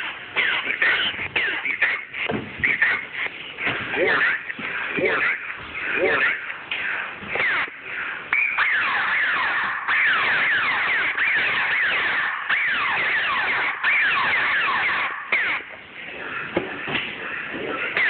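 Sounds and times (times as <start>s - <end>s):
laser tag guns firing: 3.6s - 18.0s.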